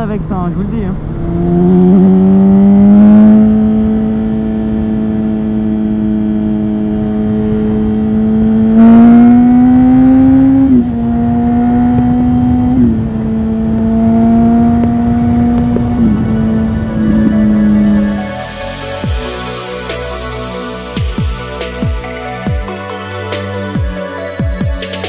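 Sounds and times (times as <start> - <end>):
motorcycle engine accelerating: 0.0 - 25.0
motorcycle upshifts: 0.9 - 18.3.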